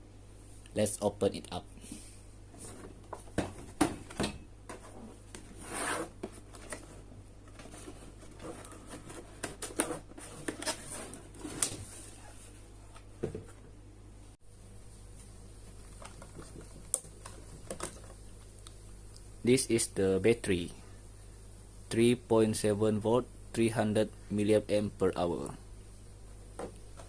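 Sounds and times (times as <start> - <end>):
packaging rustling scrape: 4.9 - 12.2.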